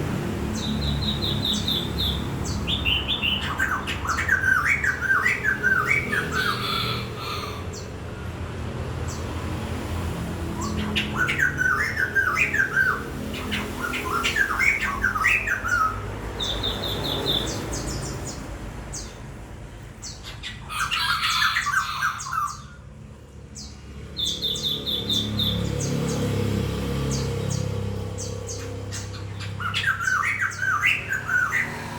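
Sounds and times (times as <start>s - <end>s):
rapid high bird trills: 27.1s - 31.9s
songbird chattering: 27.1s - 31.9s.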